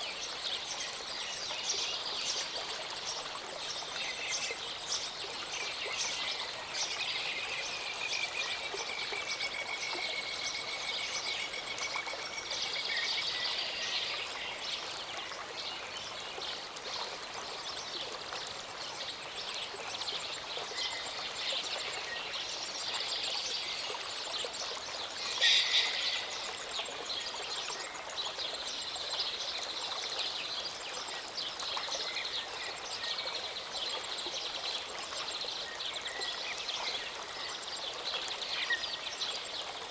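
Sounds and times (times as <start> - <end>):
mountain stream running: 0.0 - 39.9.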